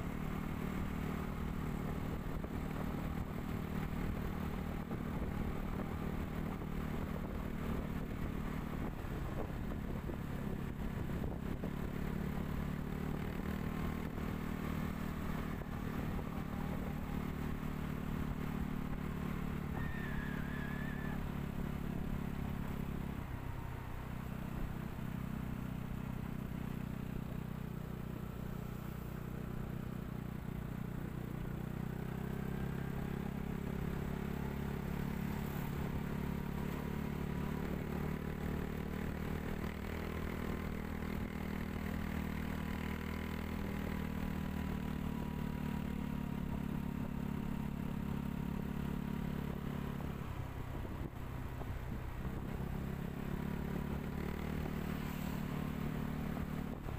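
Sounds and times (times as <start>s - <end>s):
motorbike engine running: 0.0s - 56.9s
tyre and road noise: 49.6s - 56.9s.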